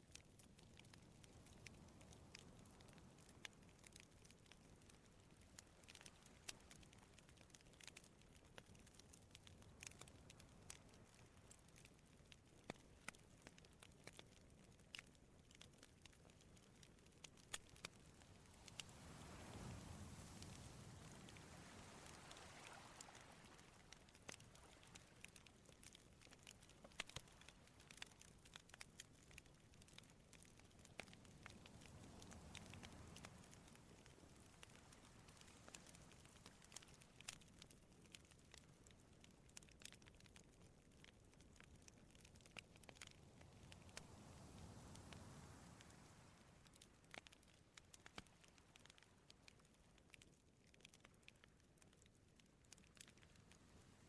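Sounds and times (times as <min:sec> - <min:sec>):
campfire crackling: 0:00.0 - 0:54.0
sea waves rushing: 0:18.7 - 0:23.8.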